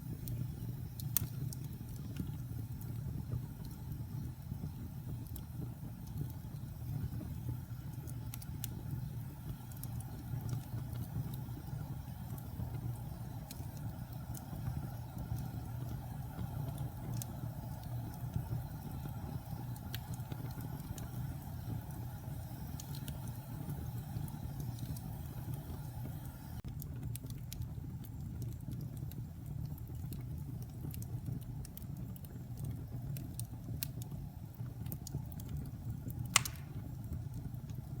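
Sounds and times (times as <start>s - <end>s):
crackles from burning logs: 0.0s - 38.0s
wood fire burning: 0.0s - 38.0s
sharp pop: 36.4s - 36.8s.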